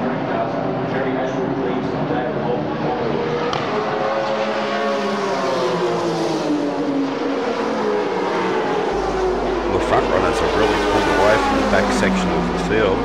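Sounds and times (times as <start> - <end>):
racing cars passing at high revs: 0.0 - 13.0.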